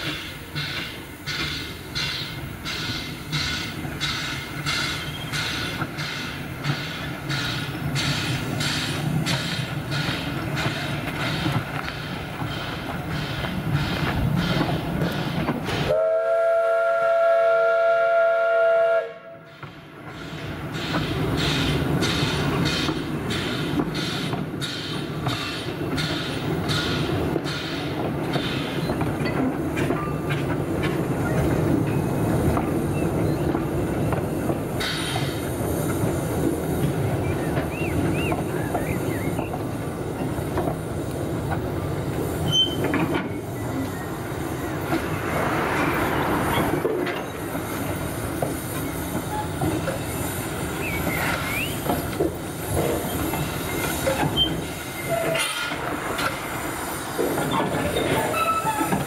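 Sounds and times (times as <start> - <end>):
train wheel squeals: 0.0 - 15.9, 34.4 - 35.5, 42.3 - 45.0, 46.2 - 59.0
train wheels clattering on rails: 0.0 - 16.0, 19.4 - 59.0.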